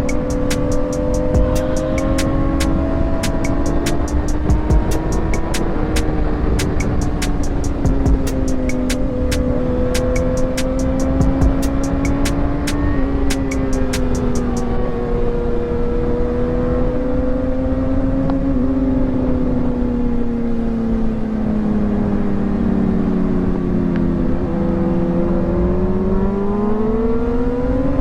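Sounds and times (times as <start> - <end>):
wind rumble: 0.0 - 17.5
motorcycle engine at high revs: 0.0 - 19.6.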